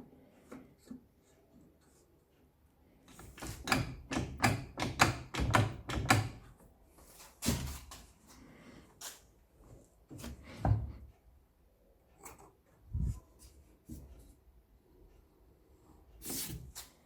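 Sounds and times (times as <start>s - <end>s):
sharp knocks and clunks: 3.2s - 6.5s.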